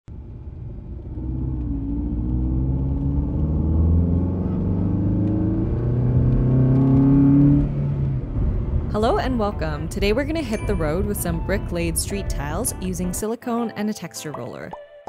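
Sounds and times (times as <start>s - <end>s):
car engine accelerating: 0.1s - 13.2s.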